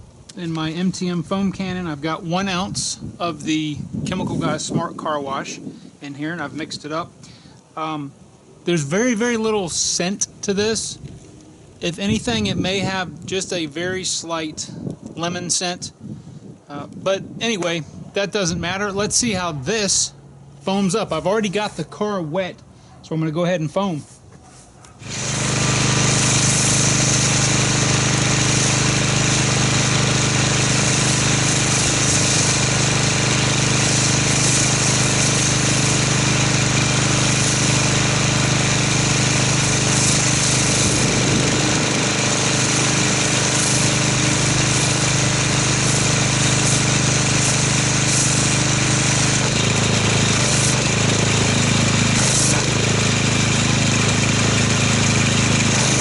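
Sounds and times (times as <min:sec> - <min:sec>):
pressure washer pump drone: 0:25.0 - 0:56.0
high spray hiss: 0:26.0 - 0:38.0, 0:38.9 - 0:49.6.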